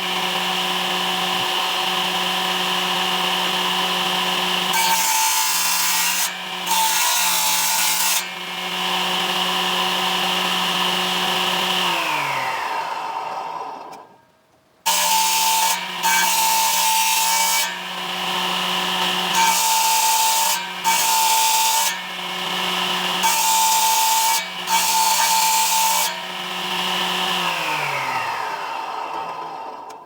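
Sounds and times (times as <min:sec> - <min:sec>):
power tool cutting wood: 0:00.0 - 0:14.2, 0:14.9 - 0:30.0.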